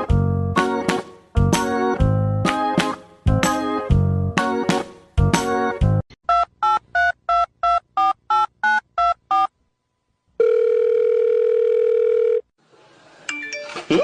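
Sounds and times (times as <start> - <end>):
telephone line tone: 10.4 - 12.5.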